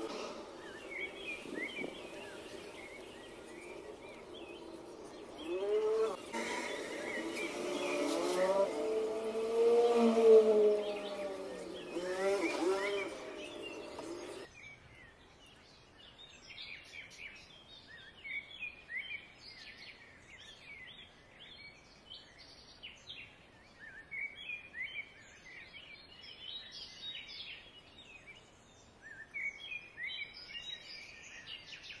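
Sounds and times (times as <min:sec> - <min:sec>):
birds chirping: 0:00.0 - 0:15.1.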